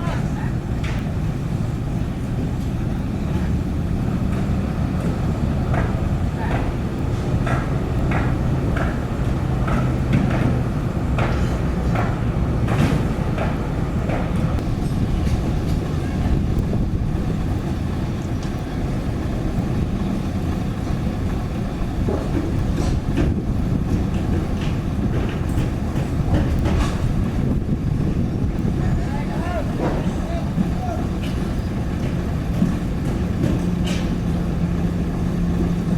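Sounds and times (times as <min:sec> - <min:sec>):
diesel engine running: 0:00.0 - 0:35.9
metallic knocks and clanks: 0:21.8 - 0:28.2, 0:29.7 - 0:34.4.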